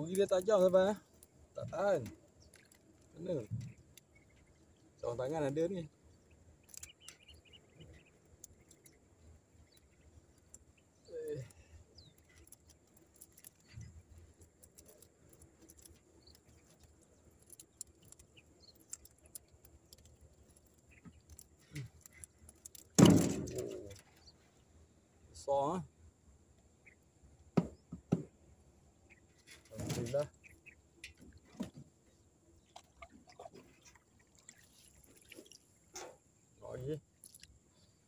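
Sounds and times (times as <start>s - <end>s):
faint scattered clicks: 0.0s - 24.6s, 32.6s - 37.9s.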